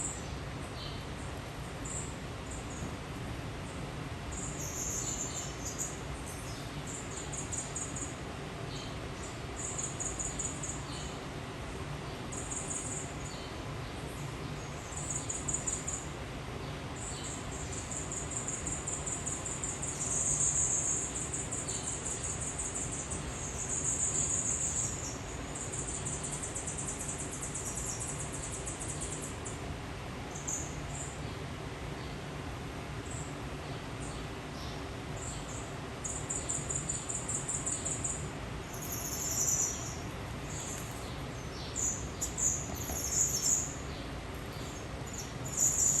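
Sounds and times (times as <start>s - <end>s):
steady low hum: 0.0s - 46.0s
insects trilling: 4.3s - 6.0s, 17.3s - 29.6s, 35.2s - 46.0s.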